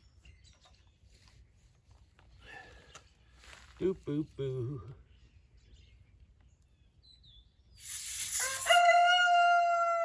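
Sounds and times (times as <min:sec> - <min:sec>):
rooster crowing: 0:08.4 - 0:10.0.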